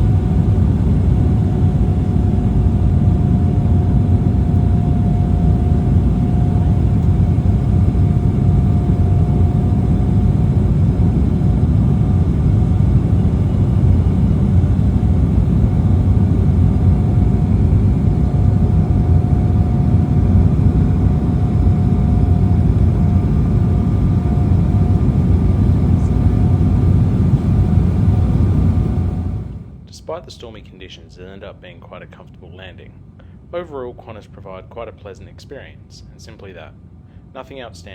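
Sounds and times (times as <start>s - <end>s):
jet cabin engine rumble: 0.0s - 29.8s
thin steady whine: 0.0s - 33.0s.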